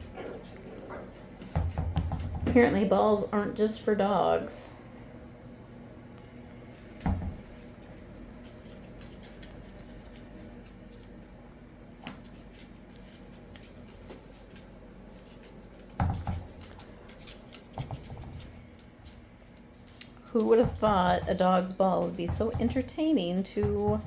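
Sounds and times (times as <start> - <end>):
ball thumping: 0.9 - 2.9, 7.0 - 7.6, 16.0 - 16.6, 20.4 - 24.0.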